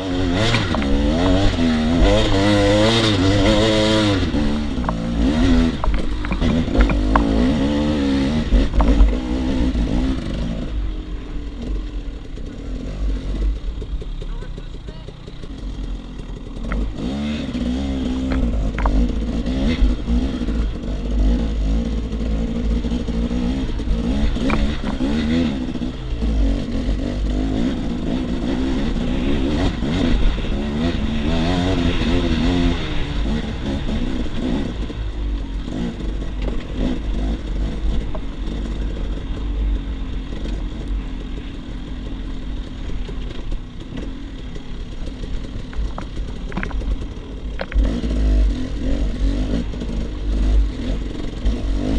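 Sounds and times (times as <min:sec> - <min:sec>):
motorcycle engine revving: 0:00.0 - 0:51.9
sharp knocks and clatter: 0:00.2 - 0:09.4, 0:15.4 - 0:17.0, 0:18.0 - 0:20.8, 0:22.0 - 0:25.5, 0:42.6 - 0:49.0.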